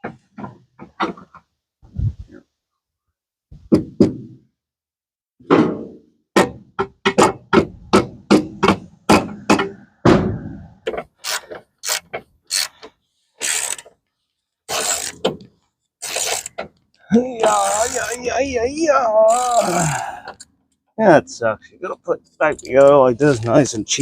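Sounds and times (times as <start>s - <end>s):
ratchet wrench clicking: 11.2s - 12.8s, 13.4s - 13.9s, 14.7s - 15.2s, 16.0s - 16.5s, 17.5s - 18.2s.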